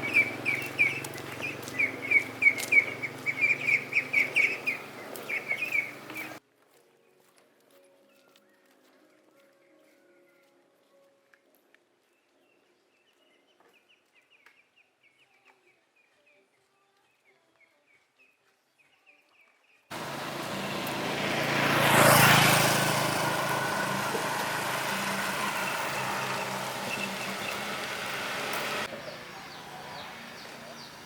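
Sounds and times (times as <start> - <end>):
motor vehicle passing: 0.0 - 6.4, 19.9 - 31.0
small birds chirping: 0.0 - 6.4, 12.0 - 31.0.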